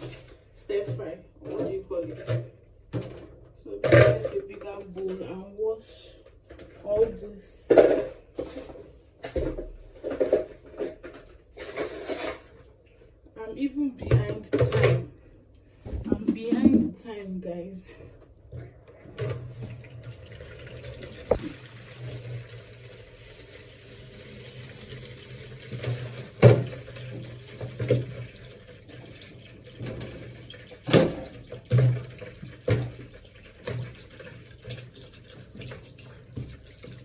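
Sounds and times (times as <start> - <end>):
tap water running into sink: 18.5 - 37.0.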